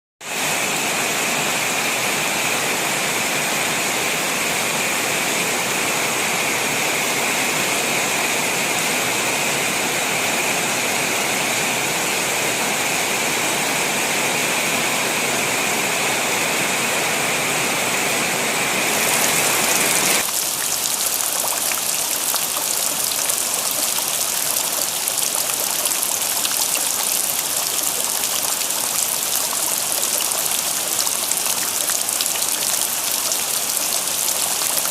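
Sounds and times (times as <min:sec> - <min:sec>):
runoff water flowing: 0:18.7 - 0:34.9
steady rain falling: 0:18.8 - 0:34.9
hissy patter of raindrops: 0:18.9 - 0:34.9.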